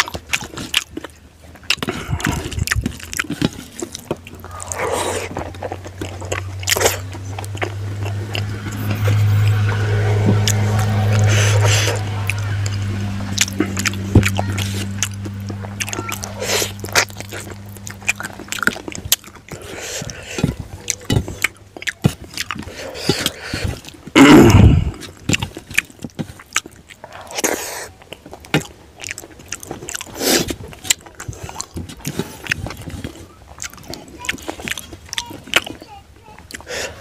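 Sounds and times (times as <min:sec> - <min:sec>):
chewing and lip smacks: 0:00.0 - 0:08.5, 0:13.4 - 0:24.2, 0:24.9 - 0:36.8
faint steady hum: 0:00.0 - 0:37.0
loud short burst: 0:06.4 - 0:18.6.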